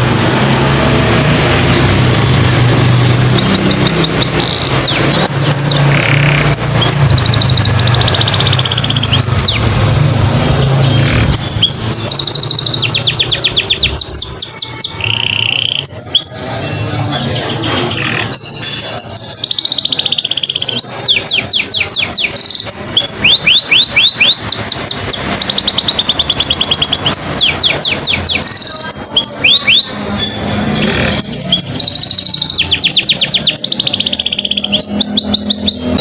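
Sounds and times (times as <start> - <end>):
canary singing trills: 0.0 - 36.0.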